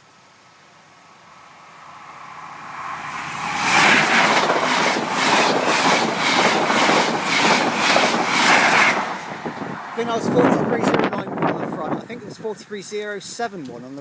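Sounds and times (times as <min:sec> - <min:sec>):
train passing at speed: 0:00.0 - 0:12.7
clatter of train wheels: 0:03.5 - 0:09.2.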